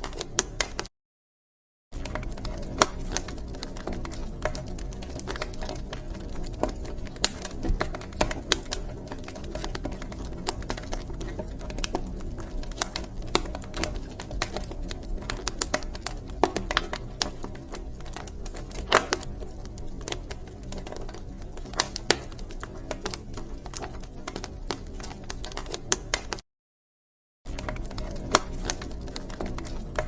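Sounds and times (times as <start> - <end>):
low rumble of flames: 0.0 - 0.9, 2.0 - 26.4, 27.5 - 30.0
wood fire popping and snapping: 0.0 - 0.9, 2.0 - 26.4, 27.5 - 30.0.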